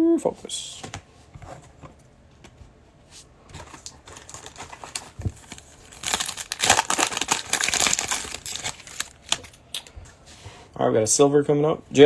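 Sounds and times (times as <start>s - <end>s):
plastic card pack wrapper crinkling: 3.6s - 9.9s
plastic wrapper tearing: 3.8s - 9.9s.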